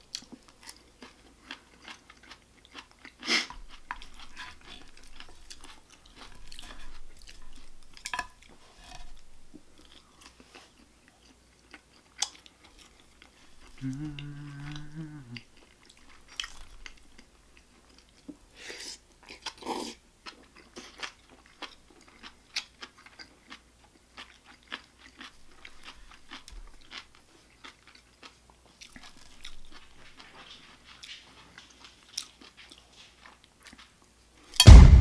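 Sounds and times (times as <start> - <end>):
man chewing food: 0.0 - 34.9
loud low hit: 34.6 - 35.0.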